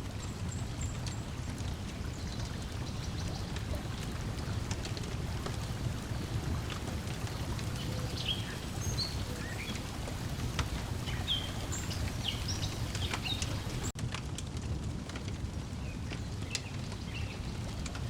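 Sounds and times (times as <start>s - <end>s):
lake water lapping: 0.0s - 14.0s
wood fire crackling: 0.0s - 18.0s
small birds chirping: 5.4s - 14.0s.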